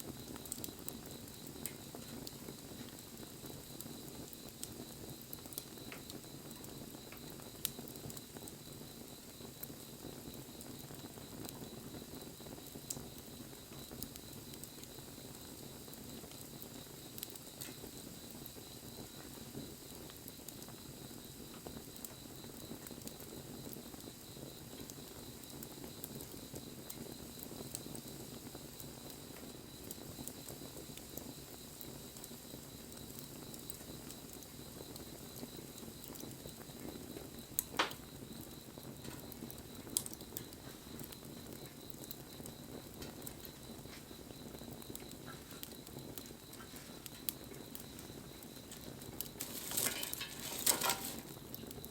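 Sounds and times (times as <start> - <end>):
bonfire crackling: 0.0 - 51.9.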